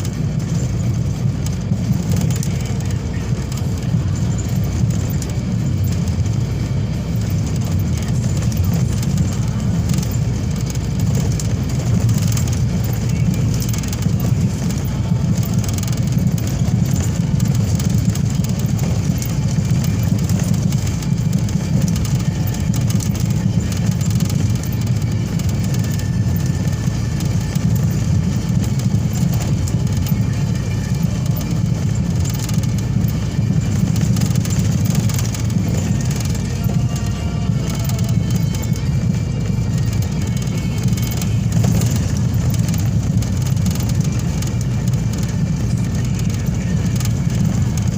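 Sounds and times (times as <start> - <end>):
car road and engine rumble: 0.0 - 47.9.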